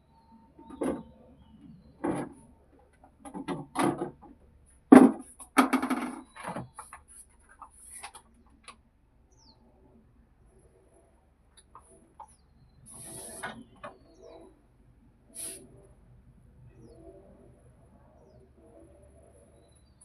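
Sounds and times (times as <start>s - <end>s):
objects knocking and bumping: 3.0s - 7.0s.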